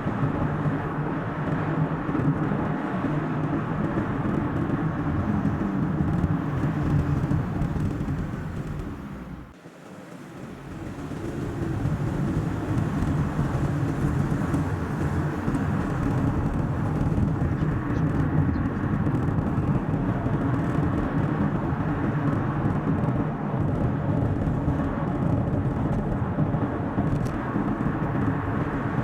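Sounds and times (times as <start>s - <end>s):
car engine and tyre rumble: 0.0s - 29.0s.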